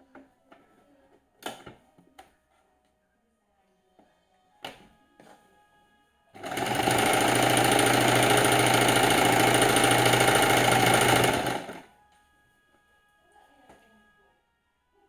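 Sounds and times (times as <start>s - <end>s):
sewing machine stitching: 6.4s - 11.8s.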